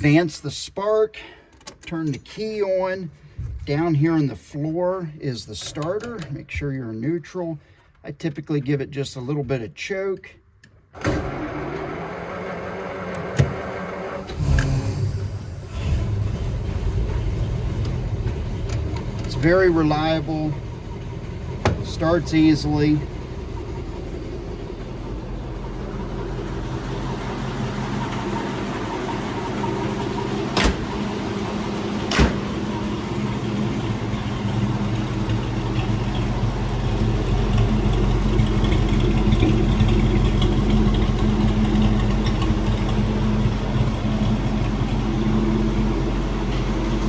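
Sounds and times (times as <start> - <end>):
car engine idling: 11.3 - 47.0.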